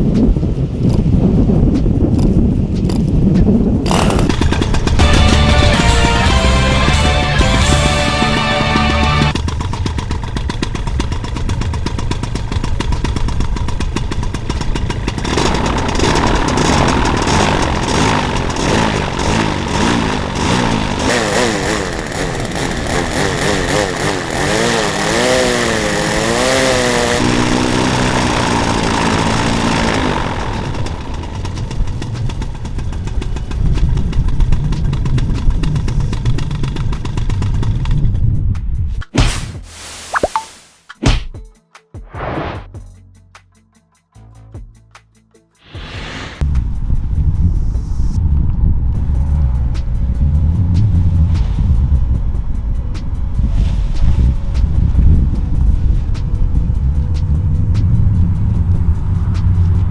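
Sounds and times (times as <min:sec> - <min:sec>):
paramotor engine running: 0:02.2 - 0:38.2
steady low rumble: 0:45.8 - 0:59.9.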